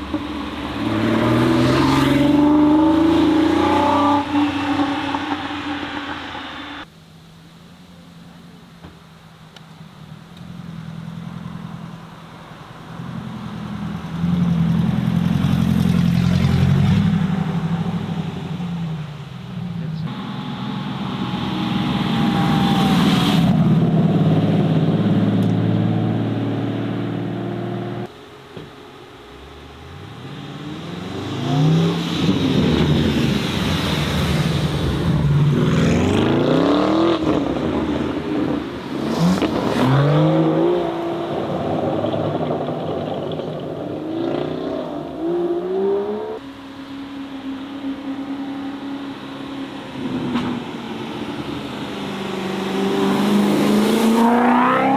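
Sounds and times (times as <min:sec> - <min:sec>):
sports car engines revving: 0:00.0 - 0:06.9, 0:09.8 - 0:28.2, 0:29.2 - 0:54.9.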